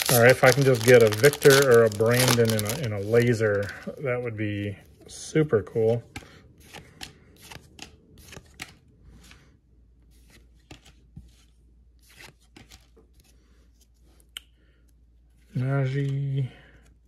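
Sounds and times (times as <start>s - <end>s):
trading cards flicking and sliding: 6.1s - 9.4s, 10.2s - 11.0s.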